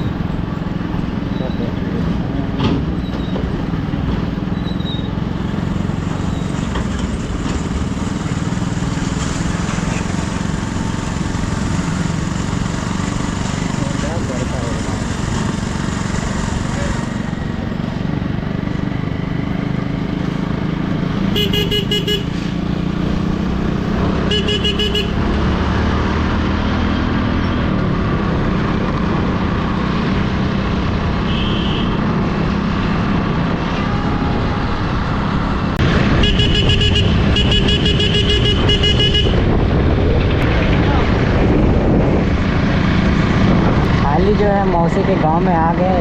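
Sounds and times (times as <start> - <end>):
motorcycle running: 0.0 - 46.0
warbling horn: 36.2 - 39.5.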